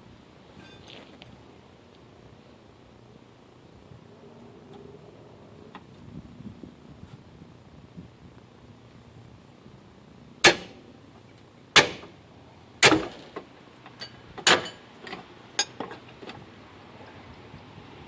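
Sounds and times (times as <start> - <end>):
sharp strikes on metal: 10.4 - 10.8, 11.8 - 12.1, 12.8 - 13.3.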